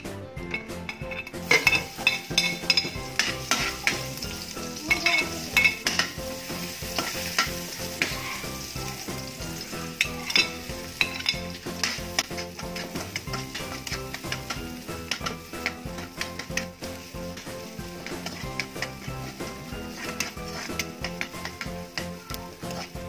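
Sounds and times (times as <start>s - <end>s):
aromatics sizzling in a wok: 0.4s - 23.0s
metal spatula scraping a pan: 0.5s - 23.0s.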